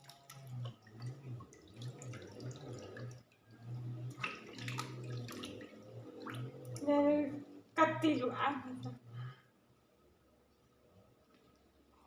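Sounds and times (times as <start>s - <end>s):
water splashing and dripping: 0.0s - 6.9s, 8.2s - 9.0s.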